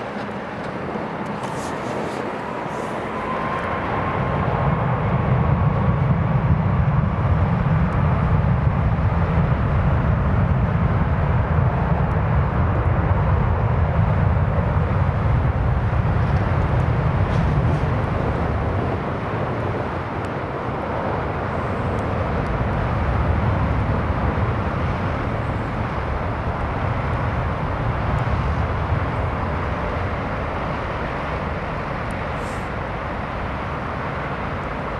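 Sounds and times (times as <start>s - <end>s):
faint whine: 0.0s - 6.5s, 14.7s - 34.9s
jet engine running: 0.0s - 34.9s
wind on microphone: 0.0s - 34.9s.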